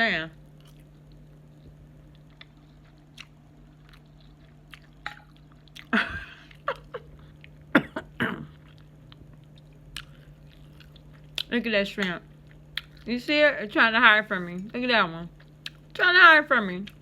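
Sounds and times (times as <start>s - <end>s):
faint steady hum: 0.0s - 17.0s
person chewing food: 0.4s - 13.1s, 15.4s - 16.0s.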